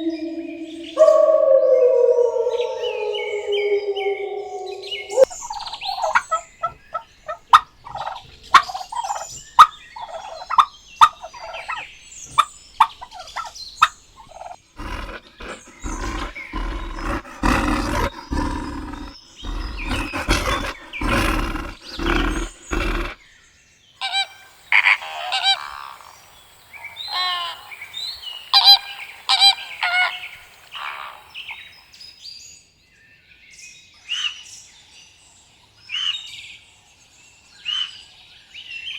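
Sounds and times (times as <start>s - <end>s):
turkeys gobbling: 0.0s - 18.5s.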